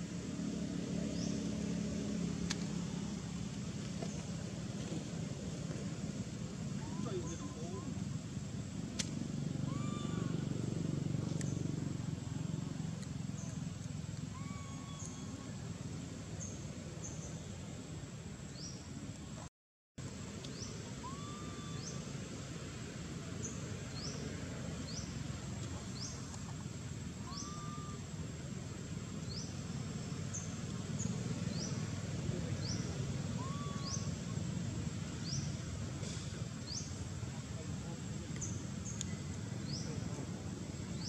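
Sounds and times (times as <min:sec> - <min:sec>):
low background noise: 0:00.0 - 0:41.0
lower hooked bird call: 0:09.6 - 0:10.4, 0:14.2 - 0:15.6, 0:20.9 - 0:22.1, 0:27.2 - 0:28.1, 0:33.3 - 0:34.4
small birds chirping: 0:27.2 - 0:28.2, 0:29.2 - 0:34.4, 0:35.1 - 0:41.0.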